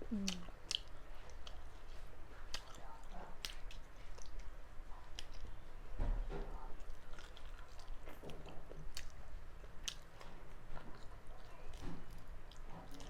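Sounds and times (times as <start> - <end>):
person chewing food: 0.0 - 5.7, 6.6 - 13.0.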